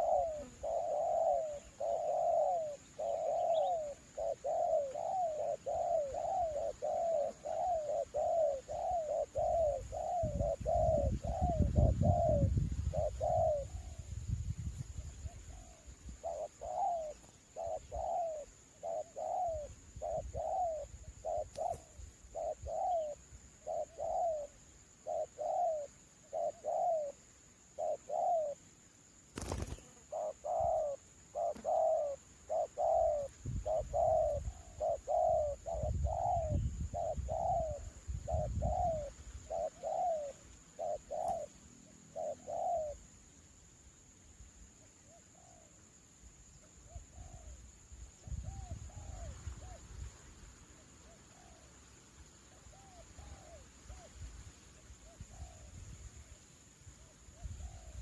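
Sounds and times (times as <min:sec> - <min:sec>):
dove cooing: 0:00.0 - 0:14.0, 0:15.2 - 0:28.6, 0:29.4 - 0:43.1, 0:51.0 - 0:51.7, 0:52.5 - 0:54.1
wind rumble on microphone: 0:09.4 - 0:16.2, 0:33.3 - 0:39.5, 0:47.1 - 0:50.2.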